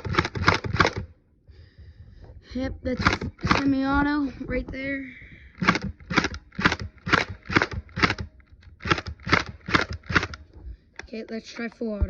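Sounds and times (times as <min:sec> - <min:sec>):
gel blaster shots cracking: 0:00.0 - 0:01.1, 0:02.9 - 0:04.0, 0:05.6 - 0:10.4.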